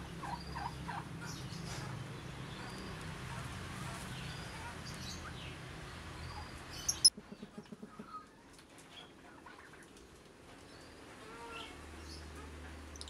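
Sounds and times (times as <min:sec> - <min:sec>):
birds chirping: 0:06.2 - 0:07.1.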